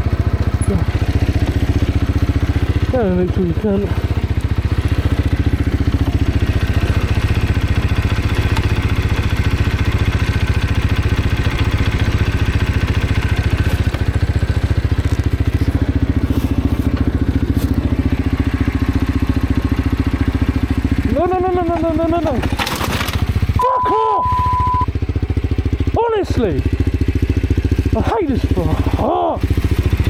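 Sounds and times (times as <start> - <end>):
motorcycle engine running steadily: 0.0 - 30.0.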